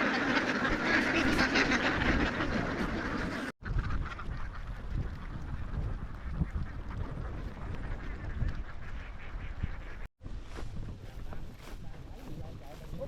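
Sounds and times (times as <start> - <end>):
flock of ducks quacking: 0.0 - 10.1.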